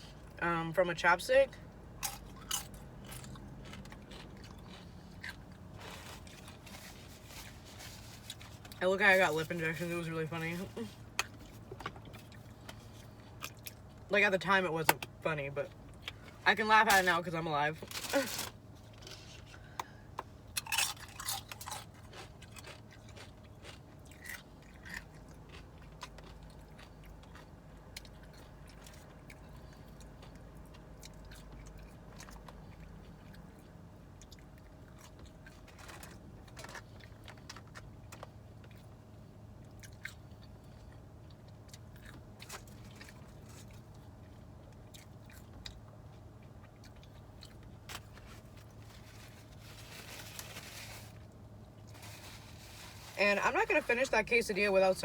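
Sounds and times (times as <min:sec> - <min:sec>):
person chewing food: 0:01.9 - 0:08.8, 0:11.0 - 0:14.0, 0:18.8 - 0:52.9
crisp crunches: 0:02.0 - 0:11.6, 0:17.8 - 0:19.5, 0:20.5 - 0:27.4, 0:47.9 - 0:53.8.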